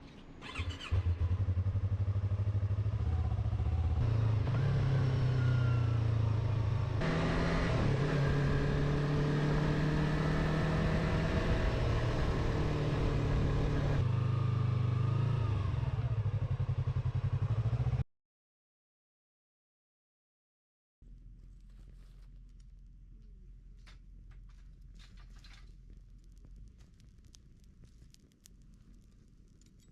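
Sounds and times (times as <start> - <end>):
motorcycle engine running: 0.4 - 18.0.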